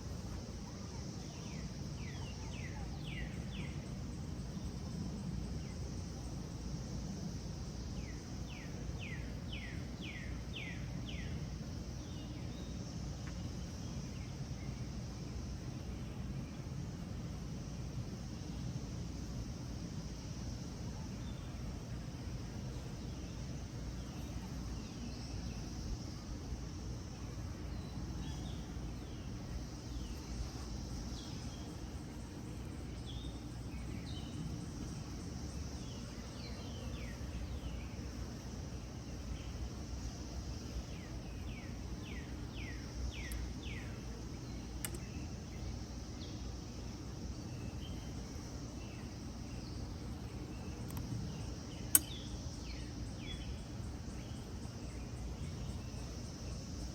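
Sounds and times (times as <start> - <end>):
insect chorus: 0.0 - 56.9
sharp click: 44.8 - 45.1, 50.8 - 51.1, 51.8 - 52.3.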